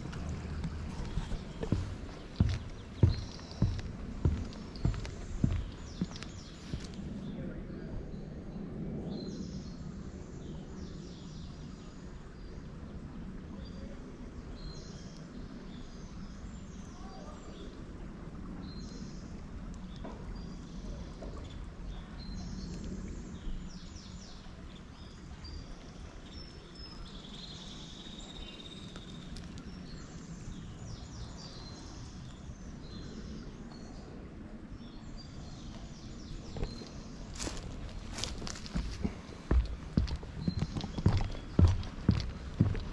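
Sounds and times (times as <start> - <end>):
small birds chirping: 0.0 - 7.3, 34.8 - 42.9
low background rumble: 0.0 - 7.6, 34.8 - 42.9.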